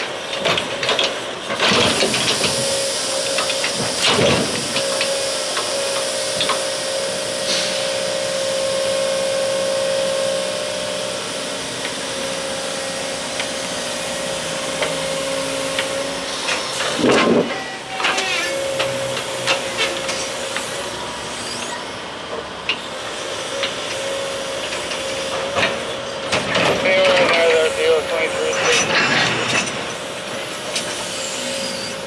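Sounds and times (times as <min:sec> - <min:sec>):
train running on track: 0:00.0 - 0:32.0
constant whining tone: 0:23.5 - 0:32.0.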